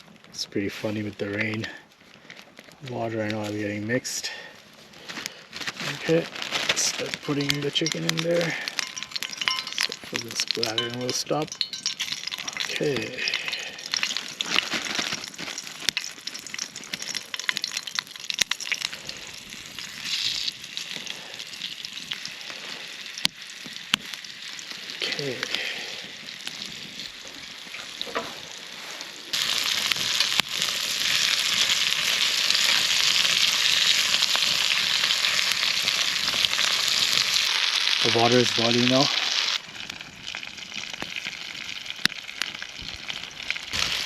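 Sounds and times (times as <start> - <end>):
chicken deep-frying in oil: 5.8 - 44.0
crackling oil pops: 23.2 - 24.2, 42.0 - 44.0.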